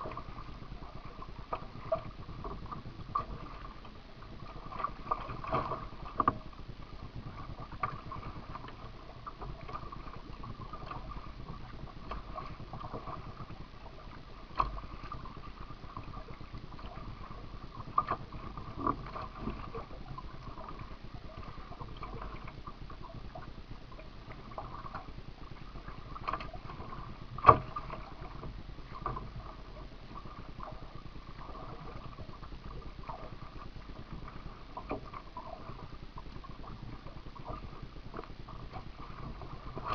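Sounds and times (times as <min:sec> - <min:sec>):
kayak paddling in water: 0:00.0 - 0:39.9
steady hum: 0:00.0 - 0:39.9.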